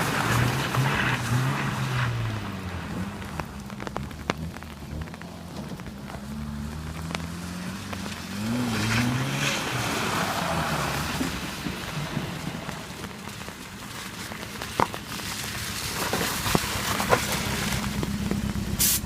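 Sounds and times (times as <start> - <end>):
truck engine revving: 0.0 - 13.4
tyres sliding on wet pavement: 0.0 - 19.0.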